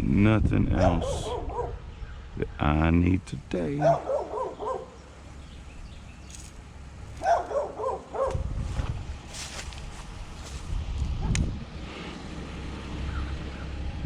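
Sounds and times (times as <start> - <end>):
low rumble: 8.1 - 14.0.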